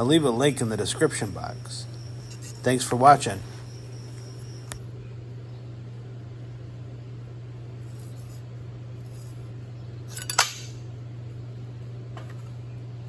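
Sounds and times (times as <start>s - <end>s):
low hum: 0.0s - 5.6s
sharp metallic clink: 10.1s - 10.8s.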